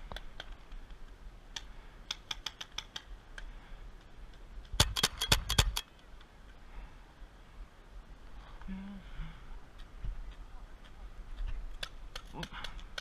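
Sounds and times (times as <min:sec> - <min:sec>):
paintball markers firing: 0:04.6 - 0:05.9.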